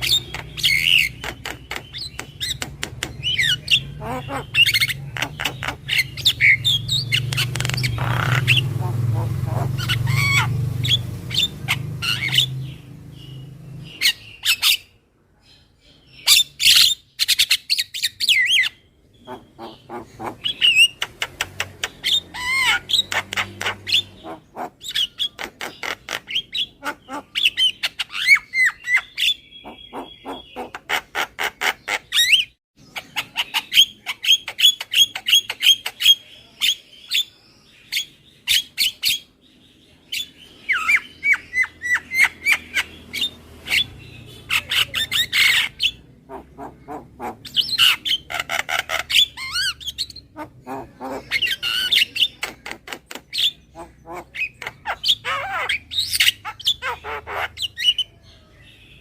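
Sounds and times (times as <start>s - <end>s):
myna chattering squawks and whistles: 0.0s - 12.6s, 40.1s - 58.2s.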